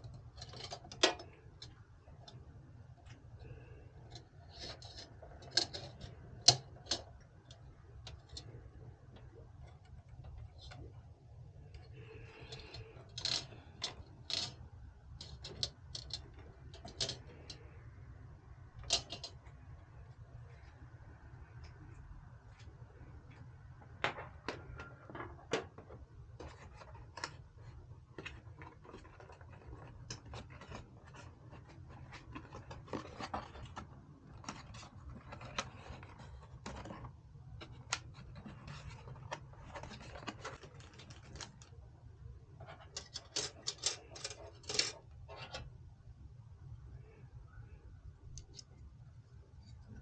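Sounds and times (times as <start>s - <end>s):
small hard parts clicking: 0.0s - 11.0s, 11.6s - 17.9s, 18.6s - 19.7s, 24.0s - 41.8s, 42.6s - 45.7s.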